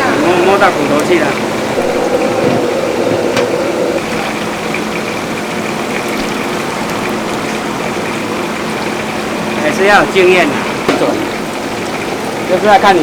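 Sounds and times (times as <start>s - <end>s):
mechanical hum with rushing: 0.0s - 4.5s
higher tone: 1.4s - 4.1s.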